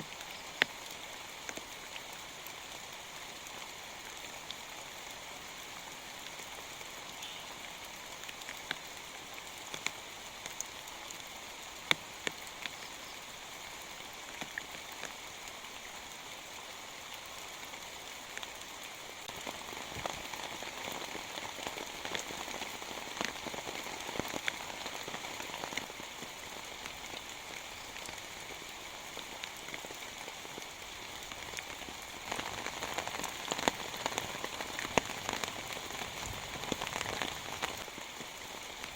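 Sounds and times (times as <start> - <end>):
steady rain falling: 0.0 - 38.9
heavy raindrops tapping: 31.3 - 38.0.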